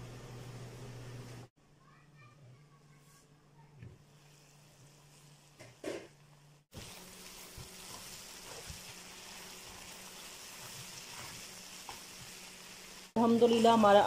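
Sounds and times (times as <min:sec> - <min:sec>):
vegetables sizzling in oil: 0:04.1 - 0:14.0.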